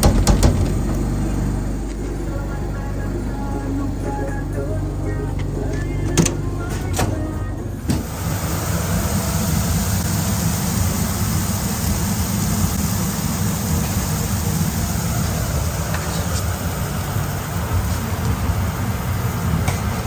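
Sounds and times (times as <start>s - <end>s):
loud engine rumble: 0.0s - 20.0s
music: 2.0s - 8.0s.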